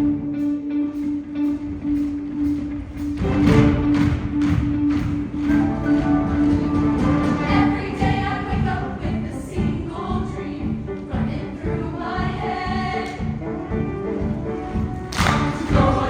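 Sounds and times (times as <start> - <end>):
live band playing: 0.0 - 8.4, 13.3 - 16.0
choir singing: 6.1 - 16.0.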